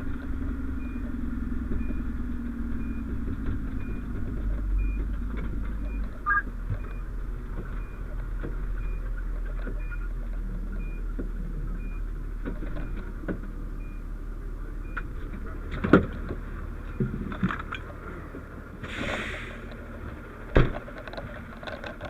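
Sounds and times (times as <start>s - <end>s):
fire engine humming: 0.0s - 21.6s
short high beeps: 6.2s - 6.5s
equipment clanking and knocking: 20.4s - 22.0s.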